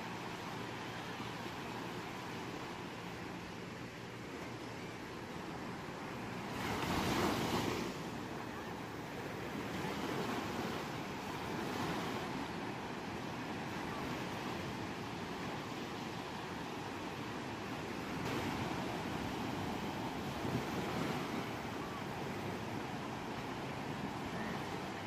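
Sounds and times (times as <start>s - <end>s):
ocean surf washing on shore: 0.0s - 25.0s.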